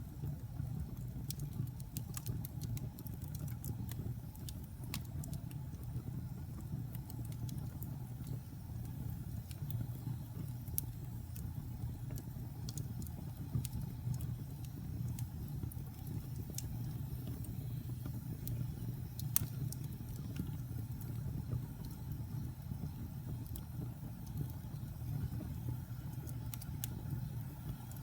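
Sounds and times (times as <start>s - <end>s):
fire flames rumbling: 0.0s - 28.0s
wood fire crackling and popping: 0.0s - 28.0s.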